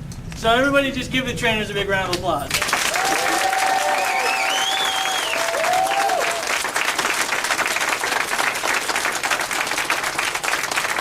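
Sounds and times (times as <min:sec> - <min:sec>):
people applauding: 0:02.5 - 0:11.0
people whooping: 0:02.6 - 0:07.0.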